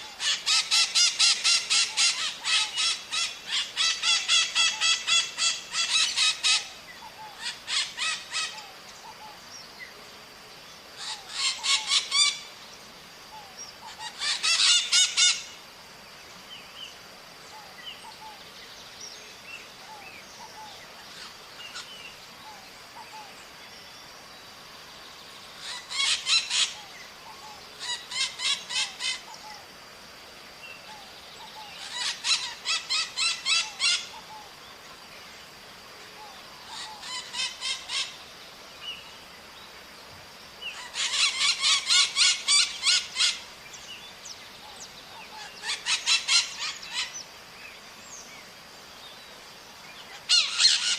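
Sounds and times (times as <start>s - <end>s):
parrots screeching: 0.2s - 6.7s, 7.4s - 8.6s, 11.0s - 12.4s, 13.9s - 15.4s, 25.6s - 26.8s, 31.8s - 34.1s, 36.7s - 38.1s, 40.8s - 43.4s, 45.4s - 47.1s, 50.2s - 50.9s.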